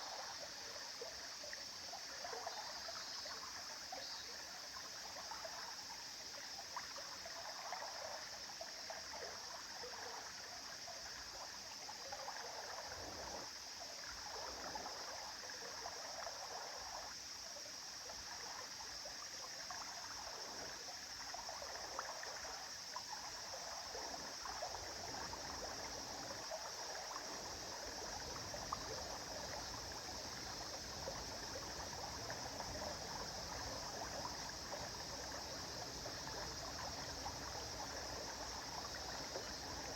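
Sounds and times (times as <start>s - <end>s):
stream babbling over stones: 21.1s - 39.9s.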